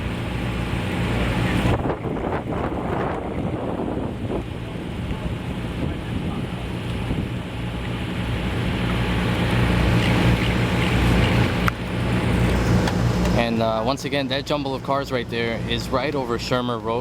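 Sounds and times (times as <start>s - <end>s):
low engine hum: 0.0s - 17.0s
wind buffeting microphone: 1.4s - 8.8s.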